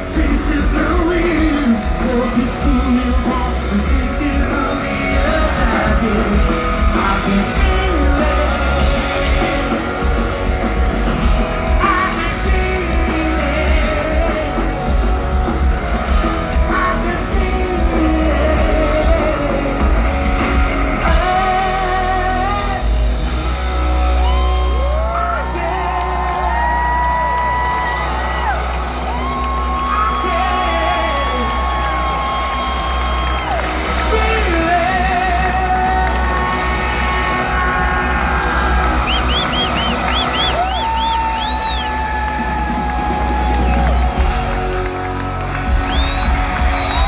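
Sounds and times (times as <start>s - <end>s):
person singing: 0.0s - 23.2s, 33.8s - 42.0s
rock band playing live: 0.0s - 47.0s.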